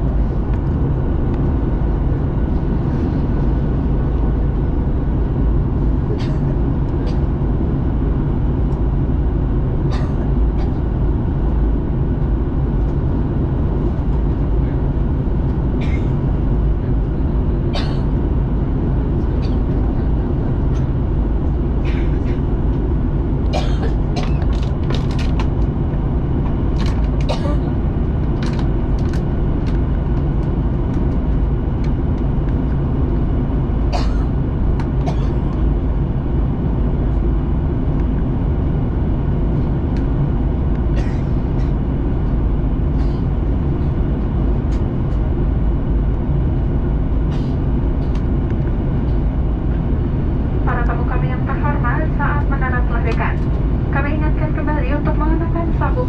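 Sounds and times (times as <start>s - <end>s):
airliner cabin engine roar: 0.0s - 56.0s
light clicks and knocks in cabin: 23.4s - 27.6s, 28.2s - 32.8s, 48.0s - 49.2s, 50.7s - 53.6s.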